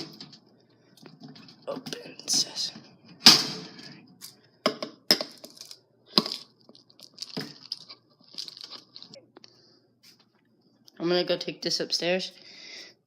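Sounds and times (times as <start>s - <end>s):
plastic container cracking: 5.1s - 9.2s
container rustling: 5.3s - 9.2s.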